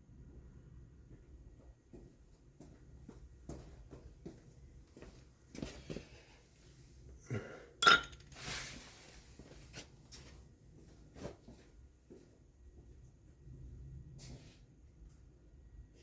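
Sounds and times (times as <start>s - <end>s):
metal tools clinking: 7.8s - 8.5s.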